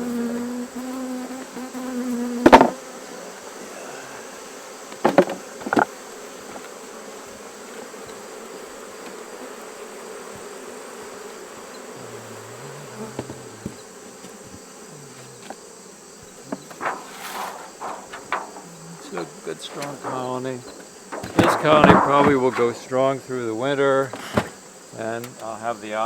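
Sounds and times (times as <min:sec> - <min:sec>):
bees buzzing: 0:00.0 - 0:26.0
sharp knocks: 0:02.5 - 0:02.8, 0:05.0 - 0:05.9, 0:16.5 - 0:23.0.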